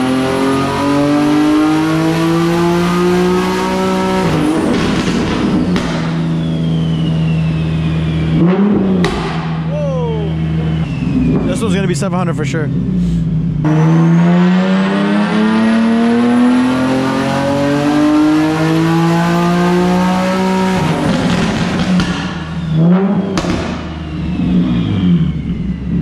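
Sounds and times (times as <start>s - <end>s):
engine revving on dyno: 0.0s - 9.7s, 13.6s - 26.0s
turbo whistle: 6.1s - 8.8s, 9.7s - 11.8s, 22.1s - 26.0s.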